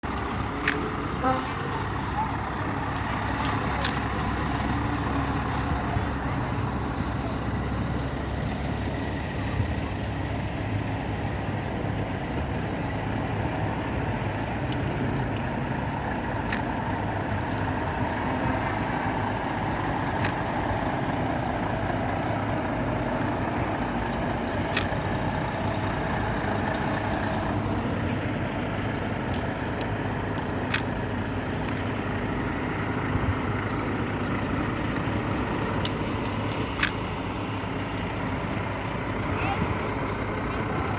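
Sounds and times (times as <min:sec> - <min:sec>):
truck diesel engine running: 0:00.0 - 0:40.9.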